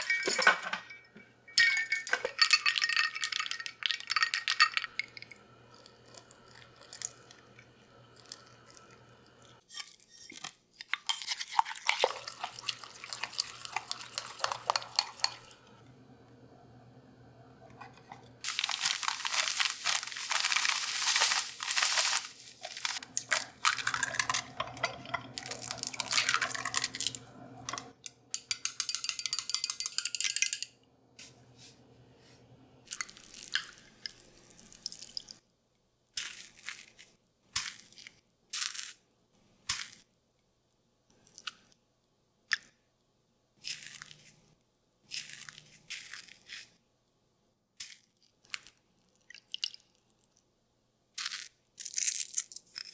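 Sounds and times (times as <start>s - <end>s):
crunching and rustling: 18.4s - 27.2s.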